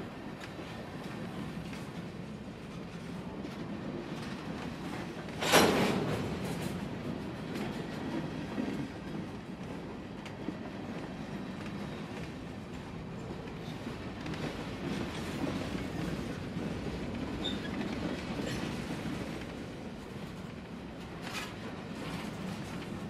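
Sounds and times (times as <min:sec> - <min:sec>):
steel wheels rumbling on rails: 0:00.1 - 0:23.0.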